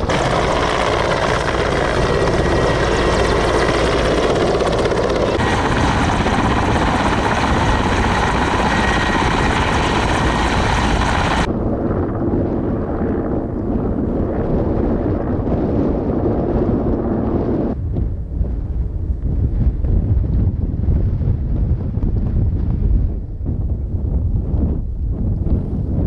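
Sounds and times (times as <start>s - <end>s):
helicopter engine and rotor drone: 0.0s - 11.5s.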